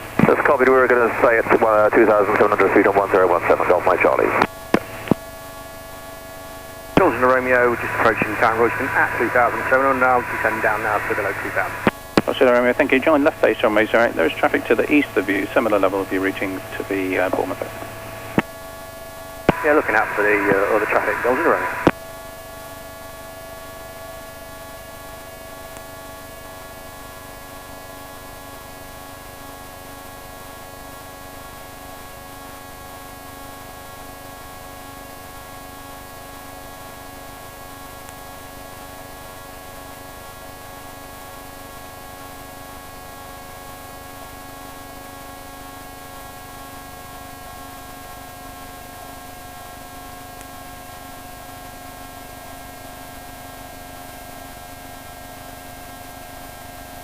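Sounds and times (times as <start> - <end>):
engine drone through intercom: 0.0 - 5.2, 7.0 - 18.5, 19.5 - 21.9.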